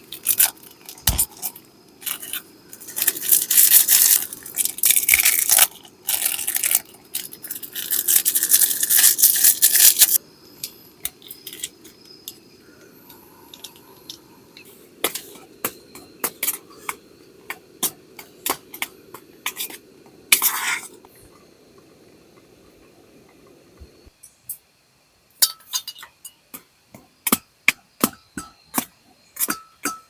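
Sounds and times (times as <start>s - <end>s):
crinkling rustle: 0.0s - 10.2s
small hard objects clicking: 0.0s - 12.5s.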